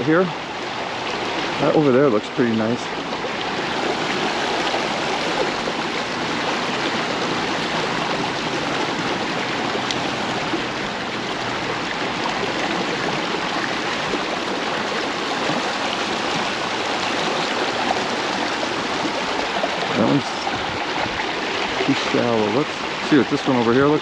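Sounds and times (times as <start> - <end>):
creek water over rocks: 0.0 - 24.0.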